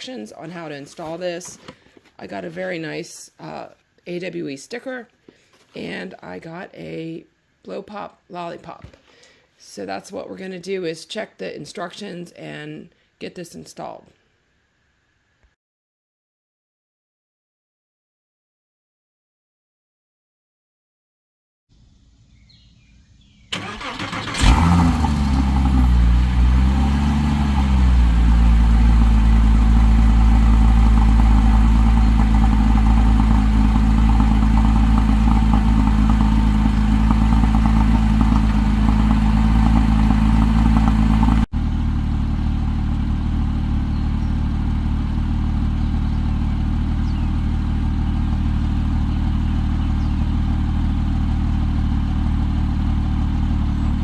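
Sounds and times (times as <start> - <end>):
car engine starting and idling: 21.8 - 54.0.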